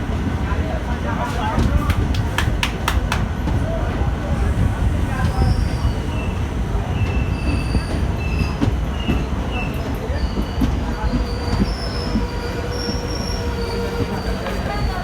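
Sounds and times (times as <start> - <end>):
train rumbling: 0.0 - 15.0
high-pitched wheel squeals: 7.1 - 15.0.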